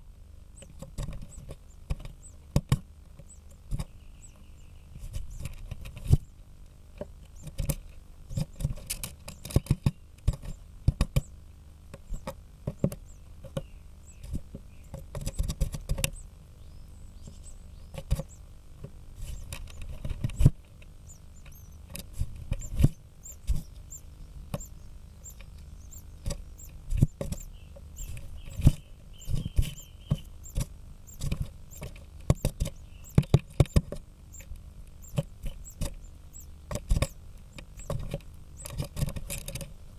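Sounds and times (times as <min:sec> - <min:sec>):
woodpecker knocking on wood: 0:12.0 - 0:16.2, 0:17.2 - 0:39.7.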